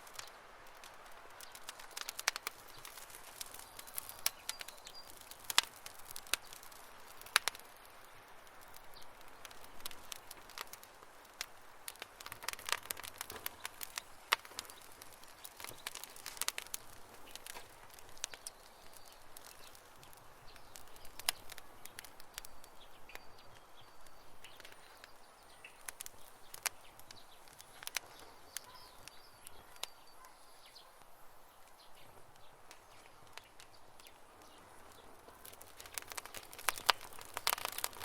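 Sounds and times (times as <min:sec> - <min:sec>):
faint steady hiss: 0:00.0 - 0:38.0
wood crackling and popping: 0:00.0 - 0:38.0.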